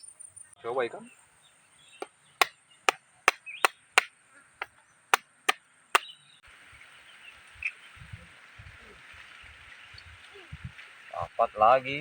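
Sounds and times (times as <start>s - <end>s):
sharp chopping knocks: 2.0s - 6.1s.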